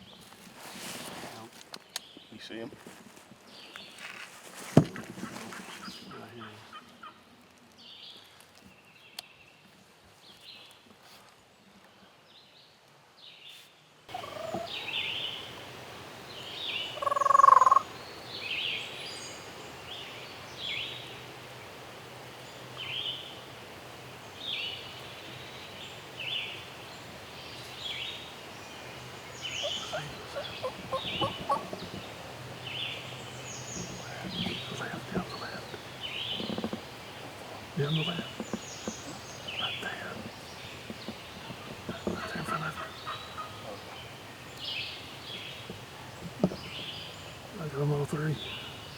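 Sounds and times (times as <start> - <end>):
turkeys gobbling: 14.1 - 14.9, 16.9 - 17.9, 29.6 - 32.2, 42.1 - 44.1.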